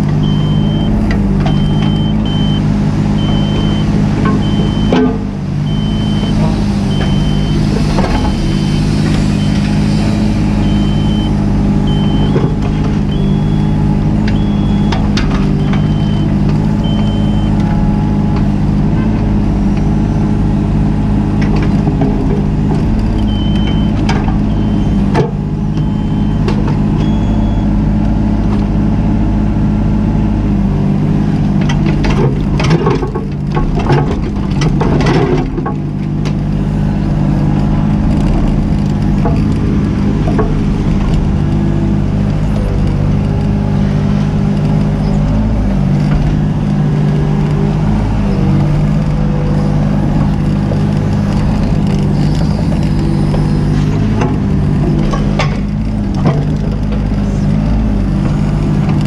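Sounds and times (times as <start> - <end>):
excavator diesel engine running: 0.0 - 59.0
high warning beeps: 0.2 - 7.6, 8.2 - 9.7, 10.5 - 17.6, 23.2 - 25.1, 25.7 - 27.7.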